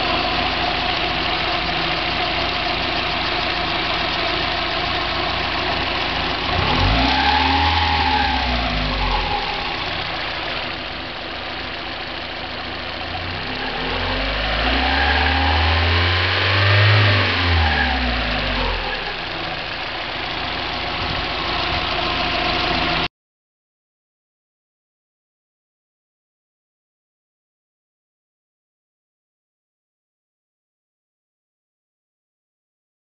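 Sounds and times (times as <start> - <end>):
car engine idling and revving: 0.0 - 23.1
engine rattle: 0.0 - 23.1.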